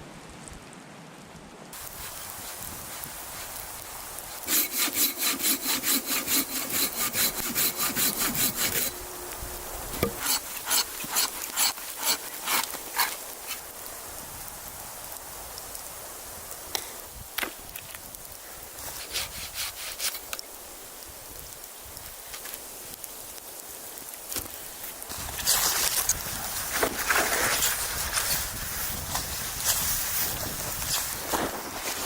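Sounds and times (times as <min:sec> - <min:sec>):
hand saw cutting wood: 0:04.4 - 0:09.0, 0:10.0 - 0:13.6, 0:18.9 - 0:20.2, 0:25.1 - 0:28.5.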